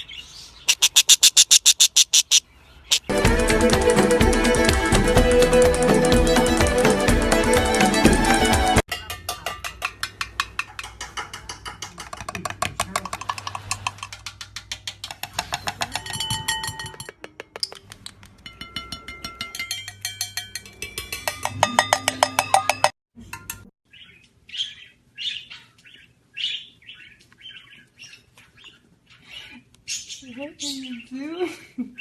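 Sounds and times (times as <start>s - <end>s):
parrot chirping calls: 0.5s - 3.1s
rapid even clicking: 0.7s - 8.8s.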